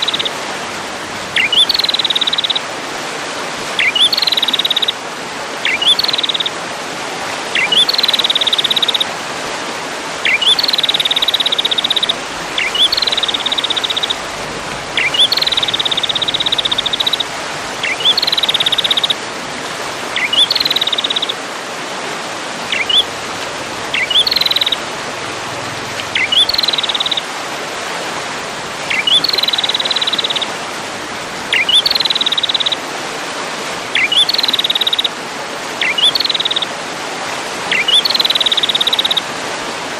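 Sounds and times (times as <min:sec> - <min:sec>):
songbird chips and buzzy trill: 0:01.4 - 0:02.6, 0:03.8 - 0:04.9, 0:05.6 - 0:06.5, 0:10.2 - 0:14.2, 0:14.9 - 0:19.2, 0:20.2 - 0:21.4, 0:23.9 - 0:24.8, 0:28.9 - 0:30.5, 0:31.5 - 0:32.8, 0:34.0 - 0:35.1, 0:35.8 - 0:36.7, 0:37.7 - 0:39.2.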